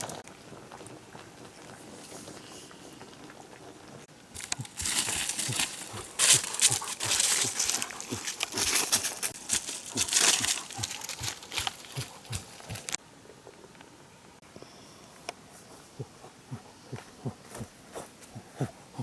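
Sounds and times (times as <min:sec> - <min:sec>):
rustling and crackling: 0:00.0 - 0:13.0.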